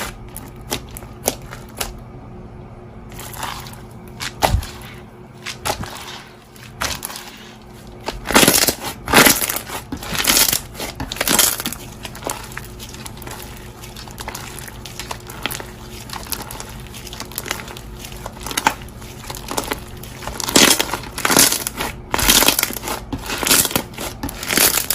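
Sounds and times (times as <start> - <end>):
crunchy slime crackles and pops: 6.7 - 24.9.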